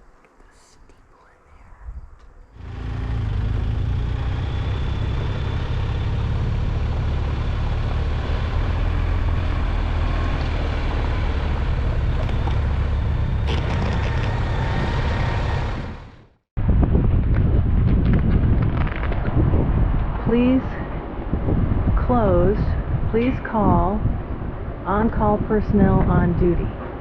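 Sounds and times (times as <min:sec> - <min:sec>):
motorcycle engine drone: 0:02.5 - 0:23.4
wind rush: 0:03.6 - 0:27.0.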